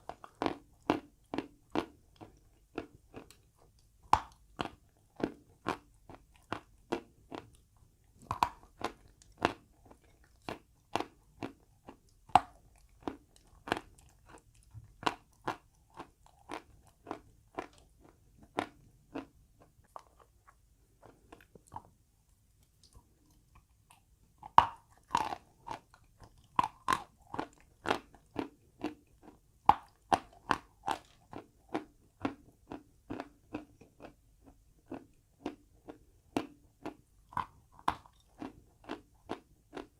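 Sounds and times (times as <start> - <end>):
chalk being crunched and chewed: 22.7 - 34.2.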